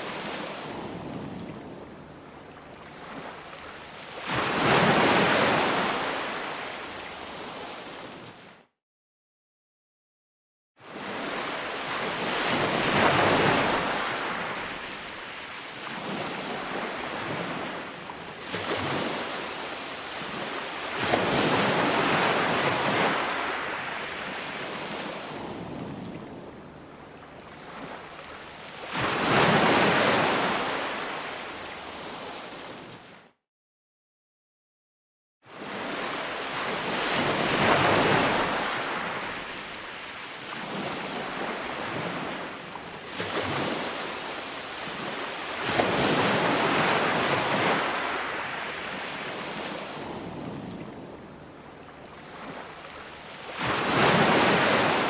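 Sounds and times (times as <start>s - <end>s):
ocean waves breaking on shore: 0.0s - 8.6s, 10.8s - 33.3s, 35.5s - 55.0s
wind on microphone: 0.3s - 3.4s, 24.2s - 30.7s, 48.9s - 52.9s.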